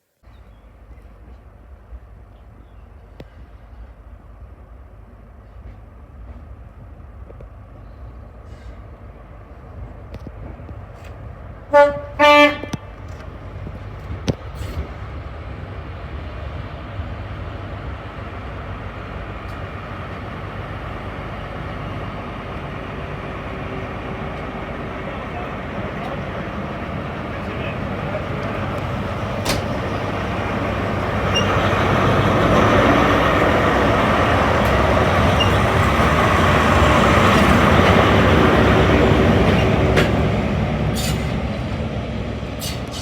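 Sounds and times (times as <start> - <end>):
train rumbling past: 0.3 - 43.0
train horn blasts: 11.7 - 13.0.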